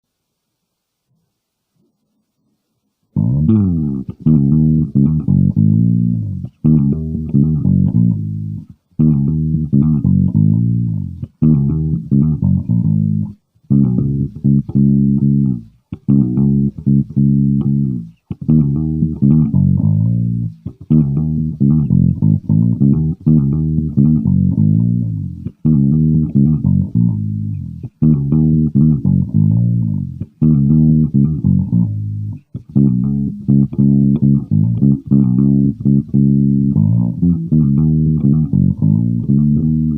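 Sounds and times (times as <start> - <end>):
electric bass riff: 3.2 - 39.9.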